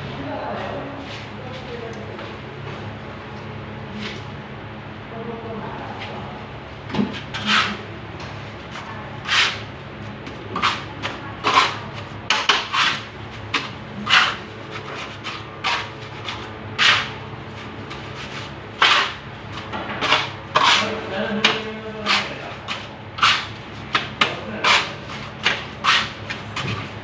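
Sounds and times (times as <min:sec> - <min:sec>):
hand tool scraping strokes: 0:07.4 - 0:07.8, 0:09.2 - 0:09.6, 0:12.4 - 0:19.2, 0:20.0 - 0:24.0, 0:24.6 - 0:26.6.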